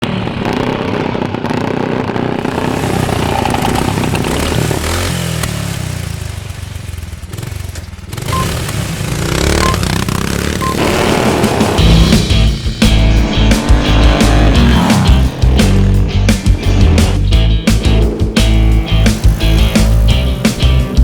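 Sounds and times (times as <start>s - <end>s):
motorcycle engines revving: 0.0s - 21.0s
short high beeps: 8.3s - 8.6s, 9.5s - 10.0s, 10.6s - 10.9s.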